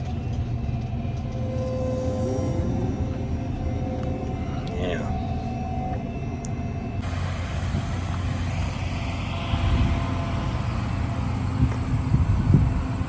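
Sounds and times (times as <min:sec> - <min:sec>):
diesel engine running: 0:07.0 - 0:13.0.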